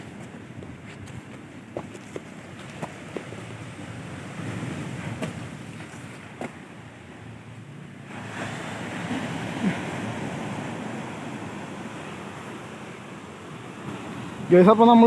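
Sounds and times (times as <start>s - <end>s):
wind buffeting microphone: 0.0s - 6.8s
sea surf washing ashore: 0.0s - 15.0s.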